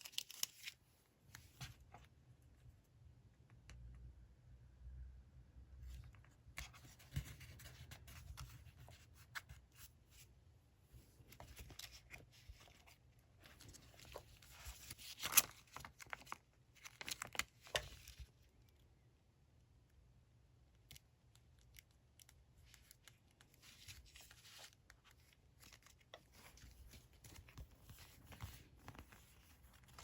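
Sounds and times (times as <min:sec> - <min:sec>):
paper rustling on a desk: 0:22.8 - 0:30.0.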